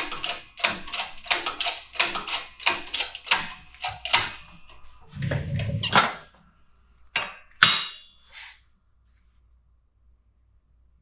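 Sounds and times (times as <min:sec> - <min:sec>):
hammer striking metal: 0:07.2 - 0:08.2.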